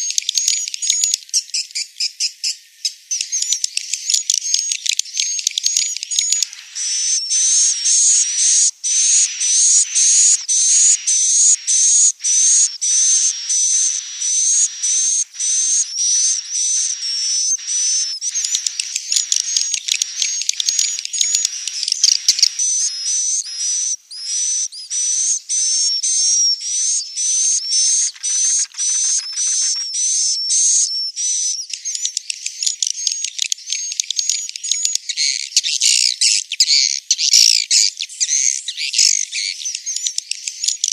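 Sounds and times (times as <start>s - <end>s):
swiftlets chirping: 6.4s - 30.0s.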